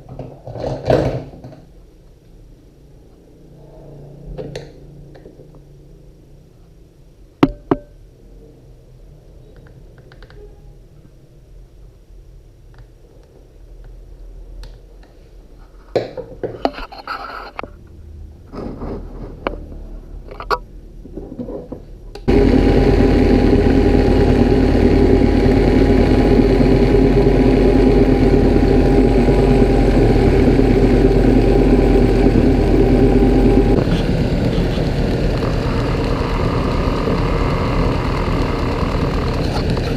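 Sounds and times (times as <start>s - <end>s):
belt grinder humming: 22.3s - 39.9s.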